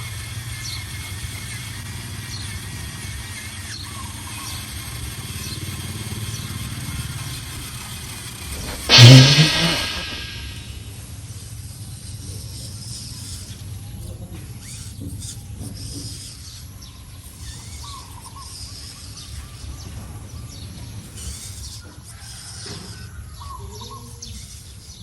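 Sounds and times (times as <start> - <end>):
toy truck electric motor grinding: 0.0 - 9.2, 11.9 - 19.9, 21.0 - 23.6, 24.2 - 25.0
steady low rumble: 8.6 - 10.8.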